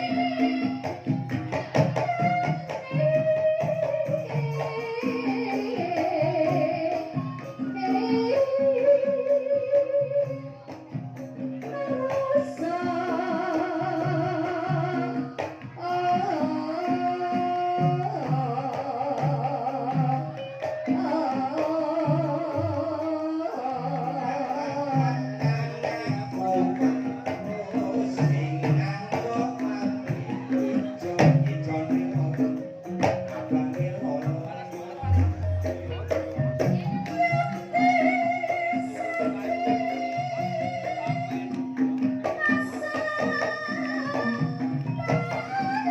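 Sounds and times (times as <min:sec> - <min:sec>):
held melodic notes: 0:30.2 - 0:42.2.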